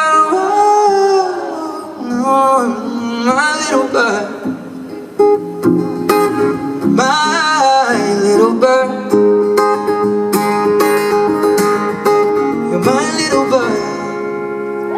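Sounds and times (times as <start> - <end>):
man singing: 0.0 - 4.7, 6.8 - 9.5, 12.6 - 14.5
acoustic guitar picking: 0.0 - 14.9.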